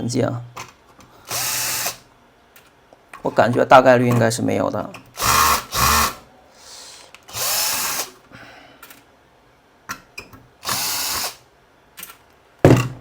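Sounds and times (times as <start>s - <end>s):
electric screwdriver running: 1.3s - 2.0s, 5.2s - 6.2s, 7.3s - 8.1s, 10.6s - 11.4s.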